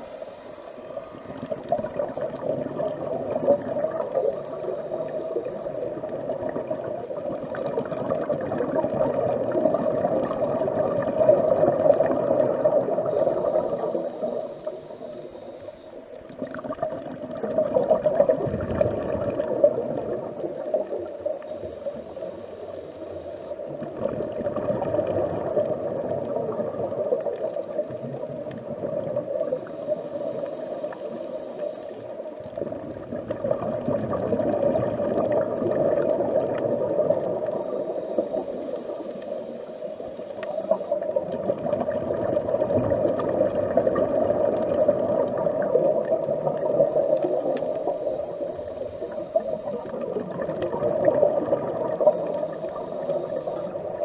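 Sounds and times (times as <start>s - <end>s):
muffled underwater rush and gurgle: 0.0s - 54.0s.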